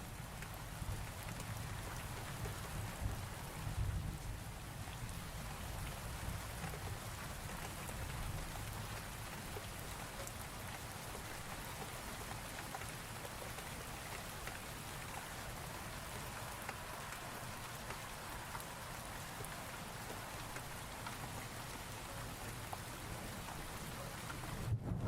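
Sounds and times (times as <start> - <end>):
rain drop ticks: 0.0 - 25.0
steady rain falling: 0.0 - 25.0
low thunder rumble: 24.4 - 25.0.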